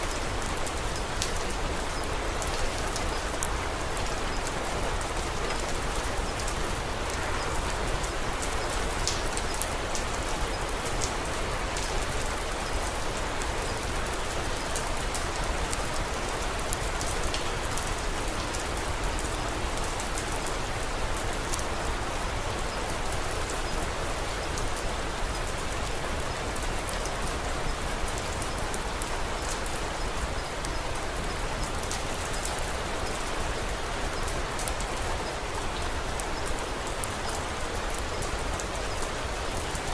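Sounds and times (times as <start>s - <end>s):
wood fire crackling: 0.0s - 21.6s
rain falling: 0.0s - 39.9s.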